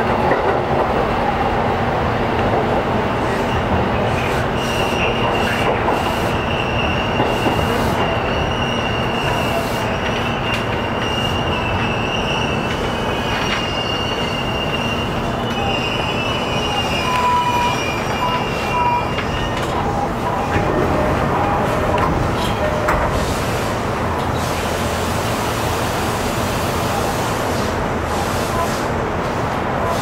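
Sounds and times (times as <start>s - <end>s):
train wheels rumbling on rail: 0.0s - 30.0s
high wheel squeal: 3.2s - 23.0s.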